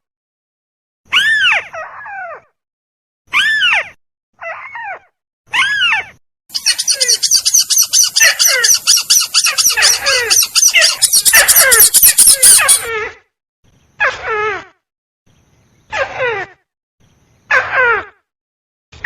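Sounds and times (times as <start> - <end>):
crake calls: 6.5 - 12.9.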